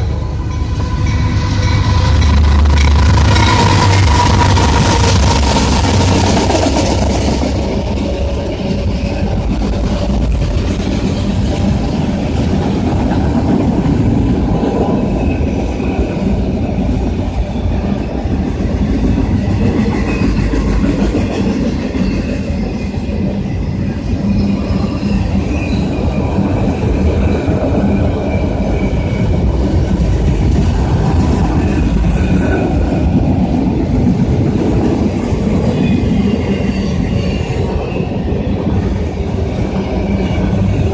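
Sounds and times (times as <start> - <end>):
high wheel squeal: 21.8 - 26.5, 35.7 - 38.3.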